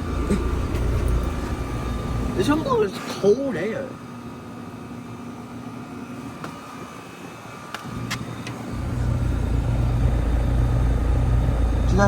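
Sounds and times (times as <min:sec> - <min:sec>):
heat pump humming: 0:00.0 - 0:12.0
loud low drone: 0:08.7 - 0:12.0.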